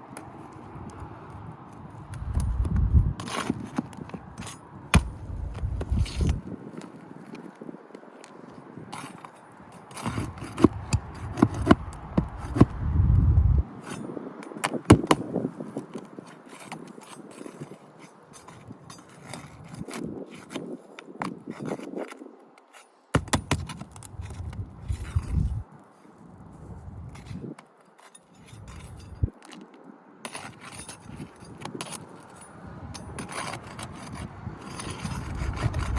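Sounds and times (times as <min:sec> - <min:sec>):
pry bar scraping shingles: 0:00.2 - 0:12.8, 0:13.7 - 0:26.2, 0:27.0 - 0:35.9
low microphone rumble: 0:02.2 - 0:03.2, 0:05.1 - 0:06.4, 0:11.8 - 0:13.7, 0:24.2 - 0:25.6.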